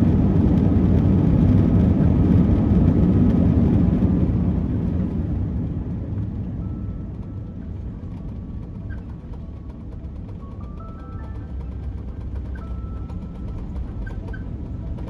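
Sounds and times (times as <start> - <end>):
jet engine low rumble: 0.0 - 15.0
faint music: 5.4 - 15.0.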